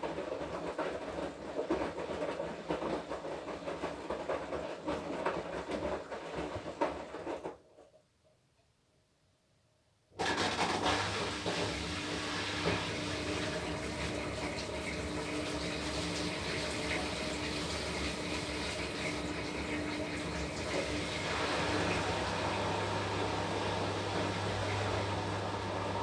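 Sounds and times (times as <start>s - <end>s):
washing machine hum: 0.0s - 7.6s, 10.2s - 26.0s
washing machine rushing water: 10.2s - 26.0s.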